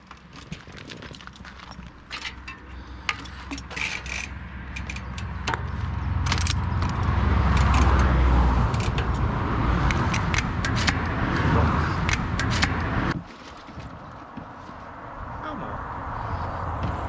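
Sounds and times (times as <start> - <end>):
bike chain clicking and rattling: 0.0 - 14.0
tyre and wind rumble: 0.0 - 17.0.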